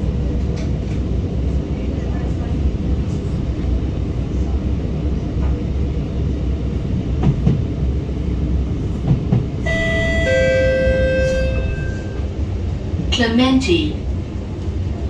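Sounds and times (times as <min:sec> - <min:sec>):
metro train rumbling: 0:00.0 - 0:15.0
two-note tone: 0:09.7 - 0:12.3.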